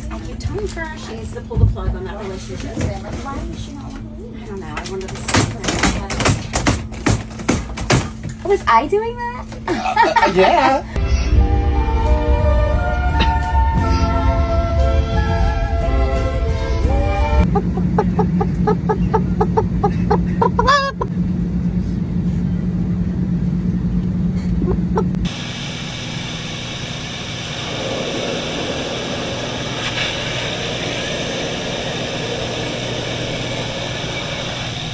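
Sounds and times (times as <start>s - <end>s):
airliner cabin engine rumble: 12.6s - 34.9s
steady hum: 15.8s - 34.9s
rising squeal: 26.6s - 34.9s.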